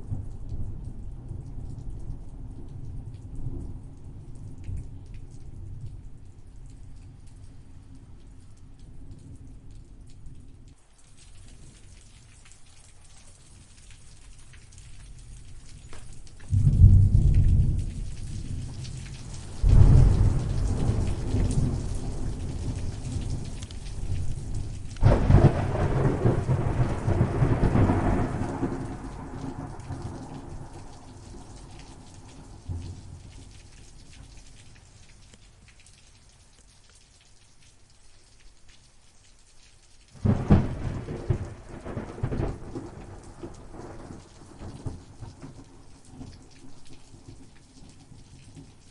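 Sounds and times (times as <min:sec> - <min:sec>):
rain falling steadily: 0:00.0 - 0:48.9
thunder claps rolling: 0:16.4 - 0:31.0, 0:40.2 - 0:44.9.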